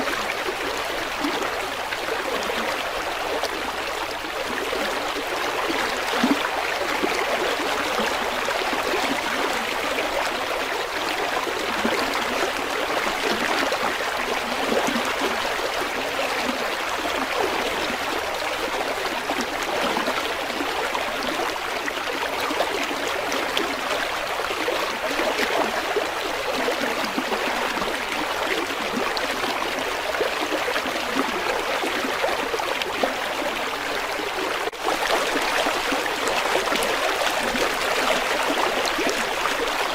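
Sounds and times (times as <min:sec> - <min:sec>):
river water running over rocks: 0:00.0 - 0:39.9.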